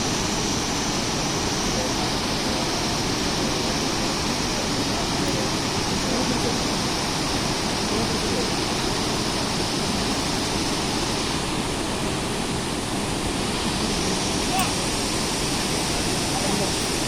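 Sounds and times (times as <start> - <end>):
large waterfall rushing: 0.0 - 17.0.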